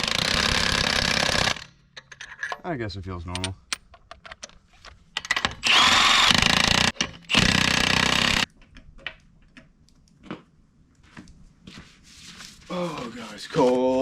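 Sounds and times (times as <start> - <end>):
impact wrench spinning lug nuts: 5.2 - 8.5.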